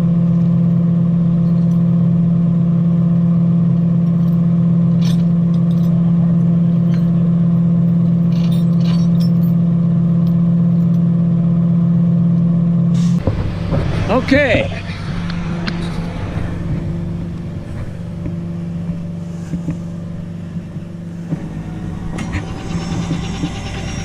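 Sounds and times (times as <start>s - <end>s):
truck engine humming: 0.0s - 24.0s
light metallic clanks: 6.7s - 11.0s.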